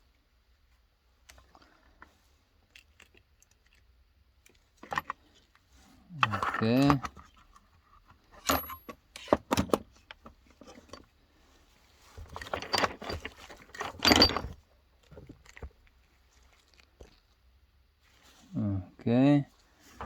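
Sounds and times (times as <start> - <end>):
small parts clicking and knocking: 1.3 - 5.6, 8.4 - 11.1, 12.2 - 16.0
tools clattering and rustling: 8.2 - 11.2, 12.0 - 15.8.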